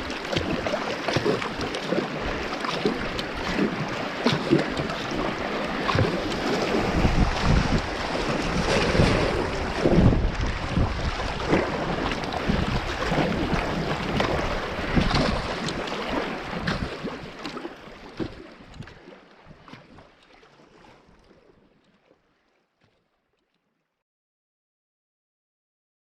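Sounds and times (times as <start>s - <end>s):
river rushing and splashing: 0.0s - 19.0s
wind buffeting microphone: 2.2s - 17.3s.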